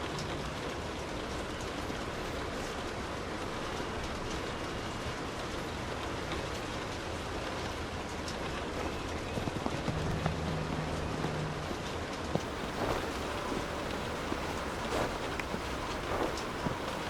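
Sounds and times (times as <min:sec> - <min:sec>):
steady rain falling: 0:00.0 - 0:10.0, 0:12.4 - 0:17.0
low steady hum: 0:12.4 - 0:17.0.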